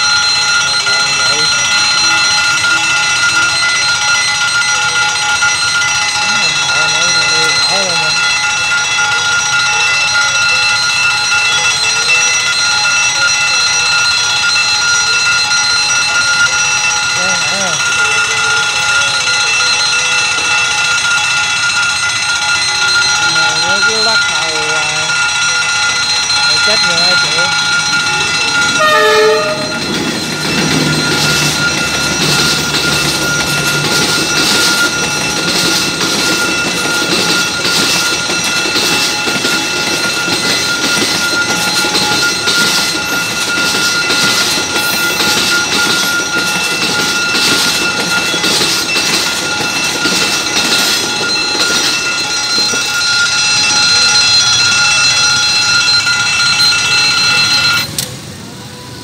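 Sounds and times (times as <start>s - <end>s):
train wheels clattering on rails: 0.0s - 58.2s
crossing signal warning tone: 0.0s - 59.0s
low train horn: 28.8s - 29.8s.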